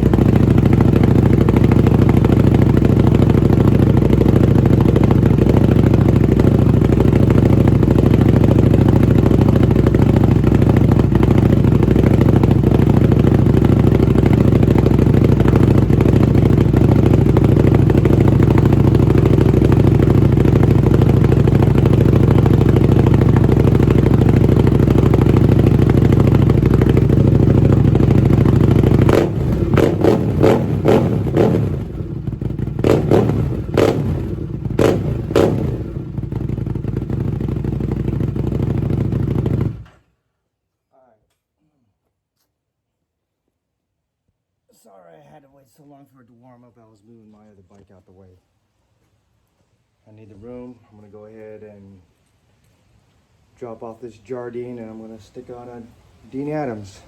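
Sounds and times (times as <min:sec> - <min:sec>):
motorcycle engine running: 0:00.0 - 0:40.1
engine sharp clatters: 0:00.0 - 0:40.2.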